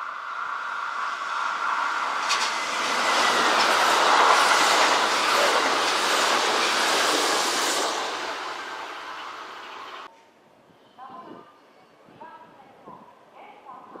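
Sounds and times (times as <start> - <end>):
train wheels on rails: 0.0 - 10.1.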